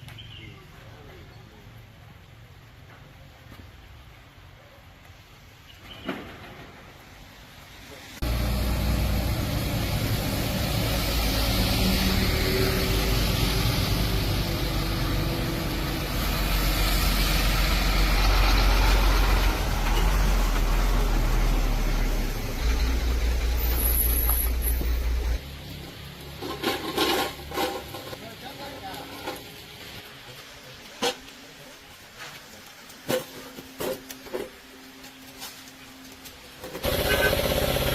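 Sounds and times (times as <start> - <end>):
vehicle engine humming: 8.2 - 28.2, 33.6 - 37.9.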